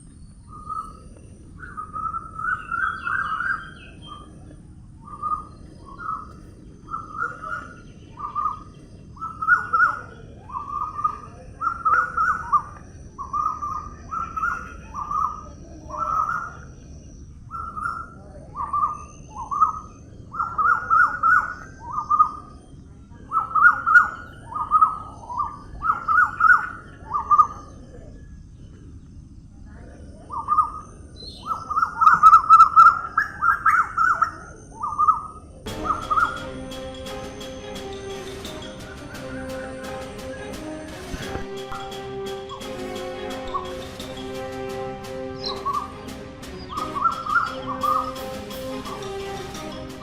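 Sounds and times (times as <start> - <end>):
bird calling: 5.0 - 16.8.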